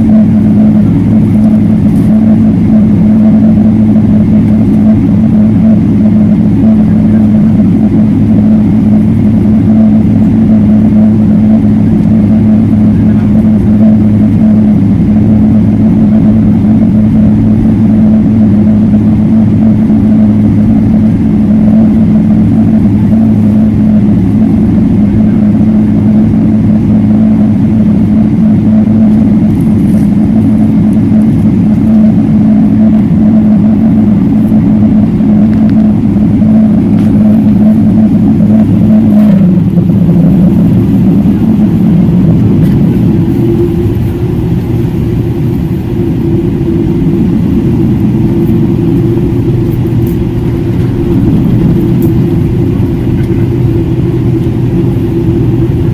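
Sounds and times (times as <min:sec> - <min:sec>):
jet engine drone in cabin: 0:00.0 - 0:55.9.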